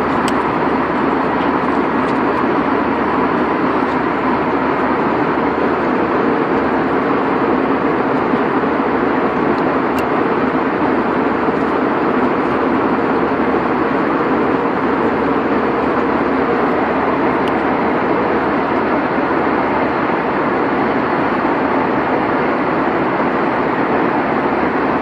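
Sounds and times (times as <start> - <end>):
airliner cabin drone: 0.0 - 25.0.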